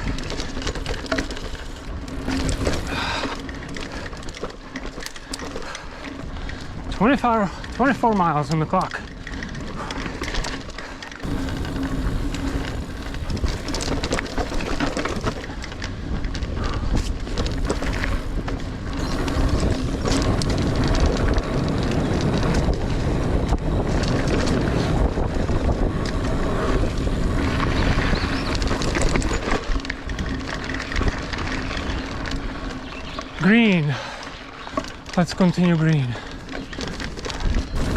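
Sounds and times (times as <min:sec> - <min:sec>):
bike clicks and rattles: 0:00.0 - 0:37.9
bike tyres rolling on dirt: 0:00.0 - 0:37.9
wind over microphone: 0:09.0 - 0:37.9.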